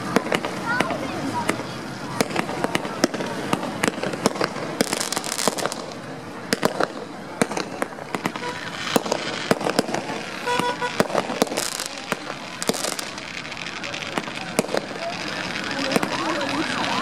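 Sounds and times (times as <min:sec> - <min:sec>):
fireworks bangs: 0:00.0 - 0:17.0
fireworks crackling: 0:00.0 - 0:17.0.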